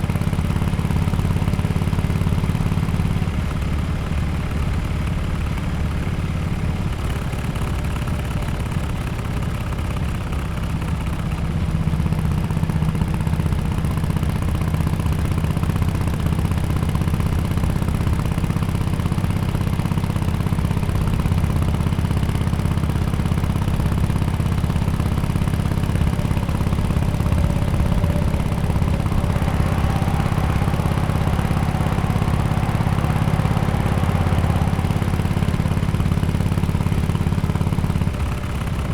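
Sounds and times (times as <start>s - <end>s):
motorcycle engine running: 18.1s - 38.9s.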